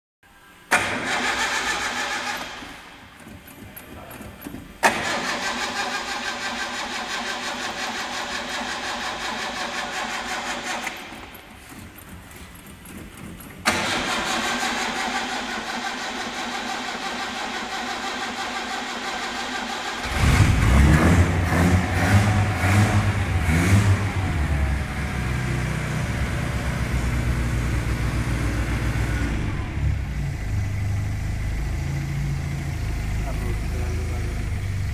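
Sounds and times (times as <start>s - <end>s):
starter motor cranking: 0.7s - 23.8s
car engine running unevenly: 20.0s - 34.9s.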